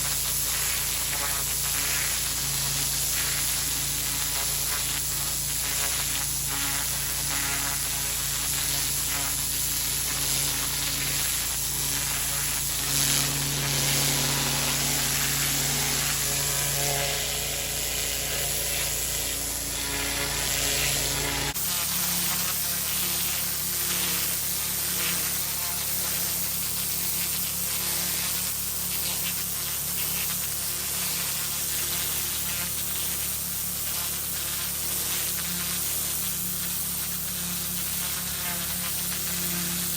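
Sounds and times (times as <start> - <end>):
pressure washer jet hissing: 0.0 - 23.6
engine humming: 11.6 - 21.6.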